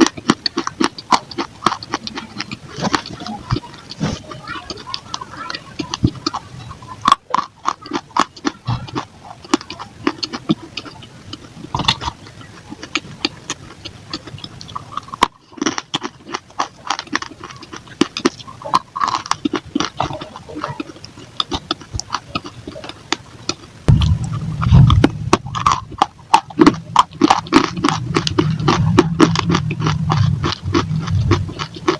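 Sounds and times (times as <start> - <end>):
crunching baked clay: 0.0 - 31.9.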